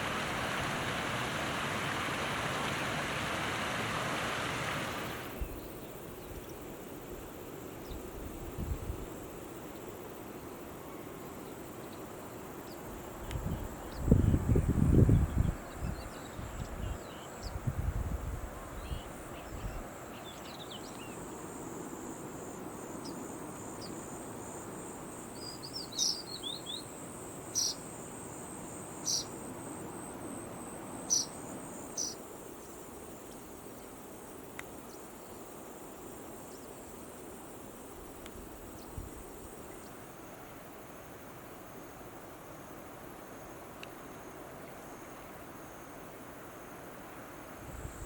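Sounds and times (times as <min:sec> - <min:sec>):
insect trilling: 0:27.5 - 0:28.0.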